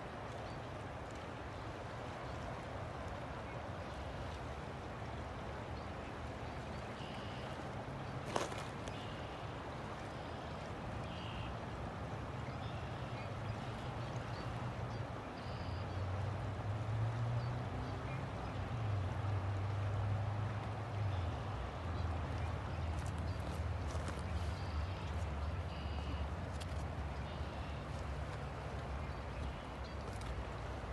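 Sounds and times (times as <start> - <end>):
river water flowing: 0.0 - 30.9.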